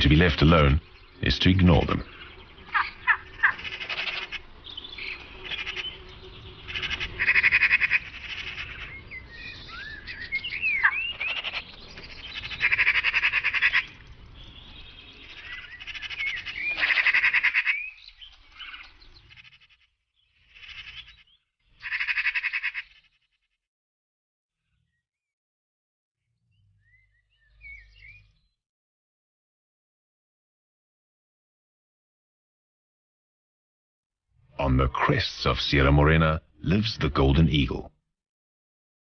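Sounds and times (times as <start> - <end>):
magpies chattering: 0.0 - 23.1.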